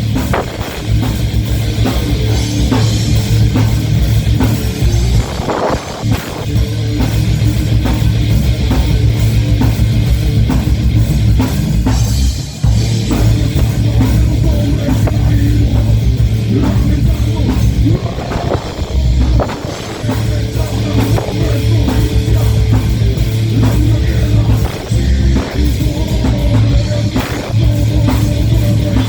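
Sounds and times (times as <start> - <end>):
bass guitar: 0.0 - 29.0
distorted electric guitars: 0.0 - 29.0
pounding drums: 0.0 - 29.0.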